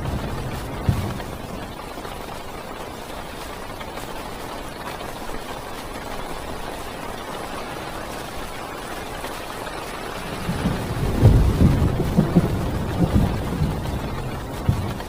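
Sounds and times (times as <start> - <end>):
thunder rumbling: 0.0 - 2.3, 10.2 - 15.0
heavy rain drumming on a car: 0.0 - 15.0.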